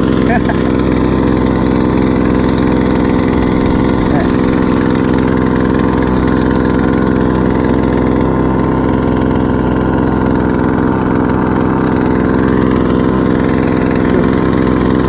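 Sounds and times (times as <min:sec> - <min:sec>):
small outboard motor running: 0:00.0 - 0:15.0.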